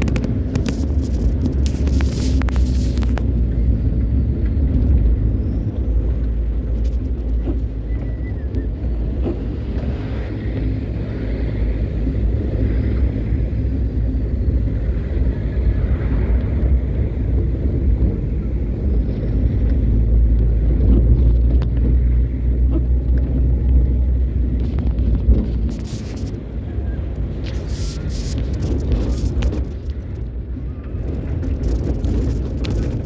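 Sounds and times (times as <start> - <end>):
vehicle engine and tyres rumbling: 0.0 - 33.0.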